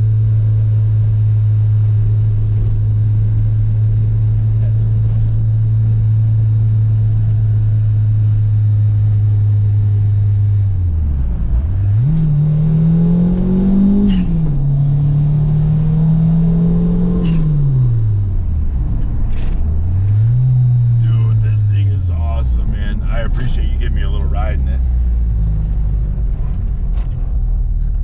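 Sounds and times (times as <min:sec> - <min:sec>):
car engine revving: 0:09.6 - 0:28.0.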